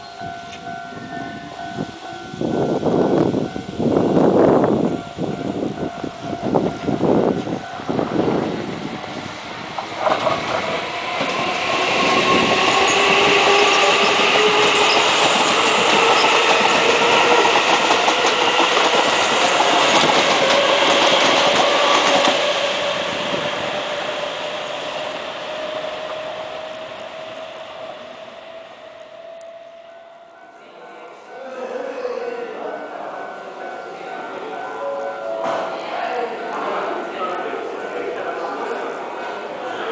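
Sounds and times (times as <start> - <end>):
electric train passing: 0.0 - 39.9
train motor whine rising: 7.4 - 30.4
wheel clacks on rail: 9.8 - 22.6.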